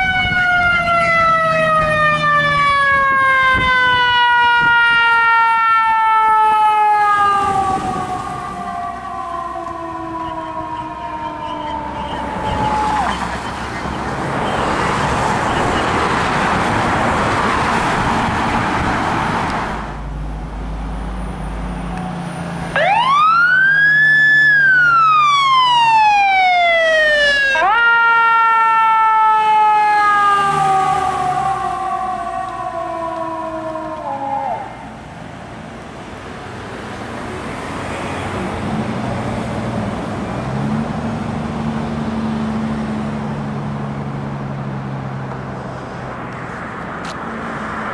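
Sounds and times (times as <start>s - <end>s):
fire engine siren wailing: 0.0s - 35.4s
loud rushing noise: 12.2s - 22.8s.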